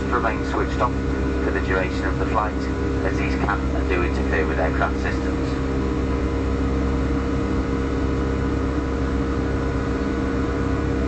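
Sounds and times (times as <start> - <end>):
airplane cabin drone: 0.0 - 11.0.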